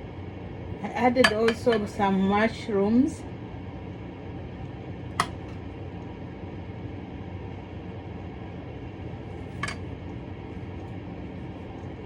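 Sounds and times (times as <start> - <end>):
steady low hum: 0.0 - 12.0
serving utensil clinking on plate: 9.6 - 9.8.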